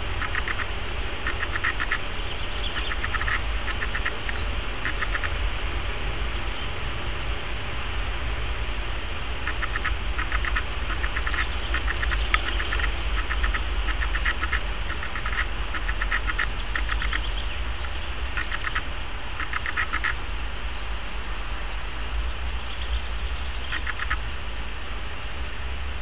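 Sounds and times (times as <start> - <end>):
bird chattering calls: 0.0 - 5.6, 9.4 - 21.9, 22.6 - 24.3
steady low rumble: 0.0 - 26.0.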